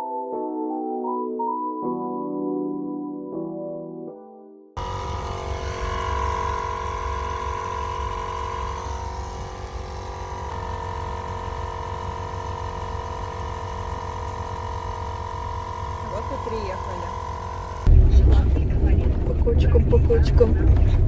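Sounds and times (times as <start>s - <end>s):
drivetrain whine: 4.8s - 21.0s
engine and road rumble: 4.8s - 21.0s.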